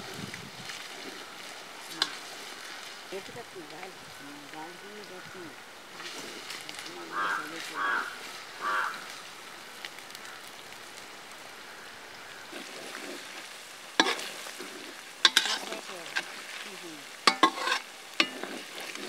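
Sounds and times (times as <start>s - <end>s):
onions sizzling in hot oil: 0.0s - 19.0s
metal ladle knocking on pan: 17.3s - 18.4s.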